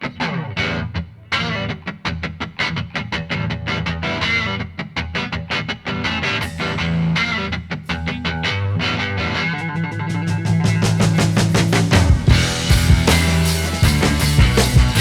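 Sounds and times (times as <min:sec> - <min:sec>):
fast picked electric guitar: 0:00.0 - 0:15.0
steady bass: 0:09.7 - 0:15.0.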